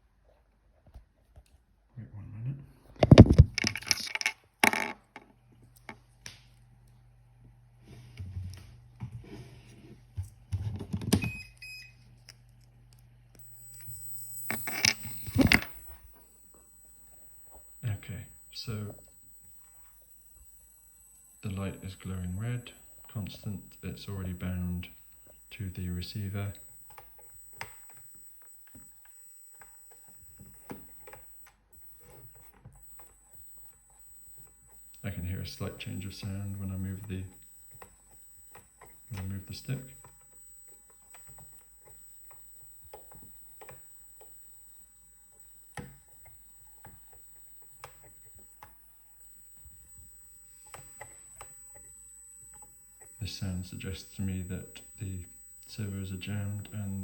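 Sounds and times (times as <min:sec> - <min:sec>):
faint low hum: 0:01.8 - 0:57.0
thin high whine: 0:02.9 - 0:04.9, 0:13.3 - 0:57.0
electronic beeps: 0:03.0 - 0:04.8, 0:11.2 - 0:12.0, 0:13.4 - 0:57.0
handling rustles and clicks: 0:03.0 - 0:04.9, 0:13.4 - 0:56.8.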